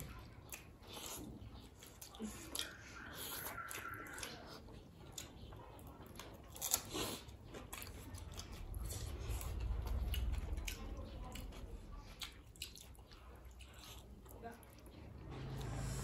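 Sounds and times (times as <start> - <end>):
chewing mouth sounds: 0.0 - 16.0
low rumble: 8.6 - 12.0, 15.0 - 16.0.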